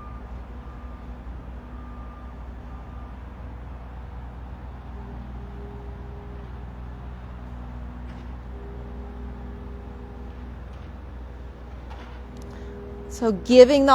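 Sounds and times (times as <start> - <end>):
reversing alarm beeping: 0.0 - 7.2, 12.3 - 13.9
distant construction machinery rumble: 0.0 - 13.9.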